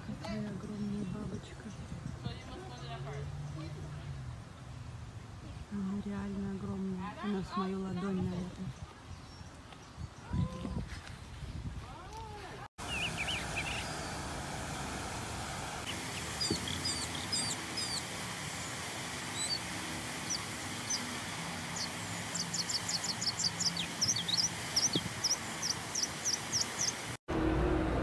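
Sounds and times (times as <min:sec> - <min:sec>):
songbird singing: 0:05.5 - 0:10.8, 0:12.8 - 0:14.9, 0:15.8 - 0:27.2.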